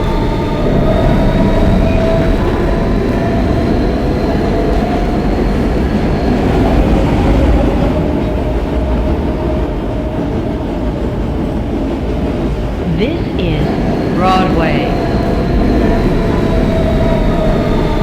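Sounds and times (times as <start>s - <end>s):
subway wheels rumbling on track: 0.0s - 12.8s.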